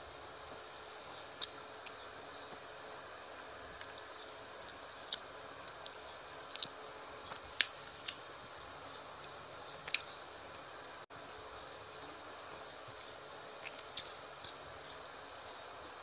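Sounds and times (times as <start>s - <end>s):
steady hiss: 0.0s - 16.0s
chewing with mouth clicks: 3.8s - 8.2s, 12.5s - 15.2s.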